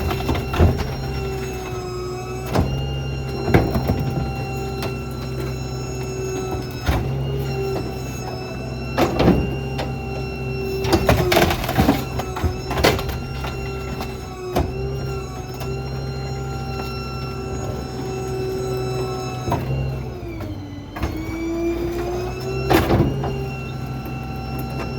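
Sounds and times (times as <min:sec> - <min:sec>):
garbage truck engine humming: 0:00.0 - 0:24.9
trash and metal clanking: 0:00.0 - 0:24.9.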